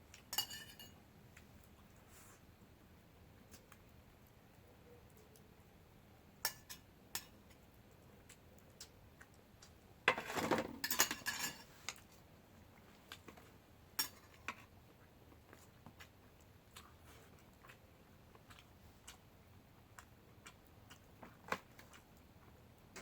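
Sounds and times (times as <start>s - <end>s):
utensils clinking on dishes: 0.3s - 1.0s, 10.1s - 11.7s.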